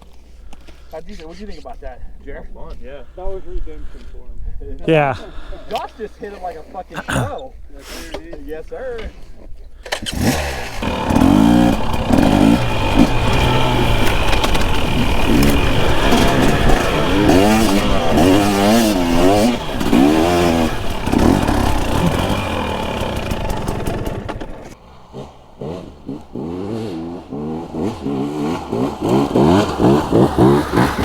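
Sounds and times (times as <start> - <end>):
dirt bike engine revving: 9.9 - 31.0.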